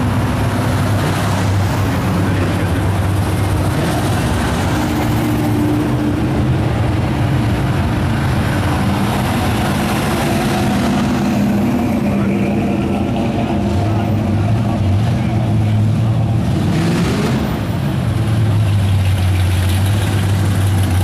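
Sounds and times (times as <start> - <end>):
car engines running at low revs: 0.0 - 21.0.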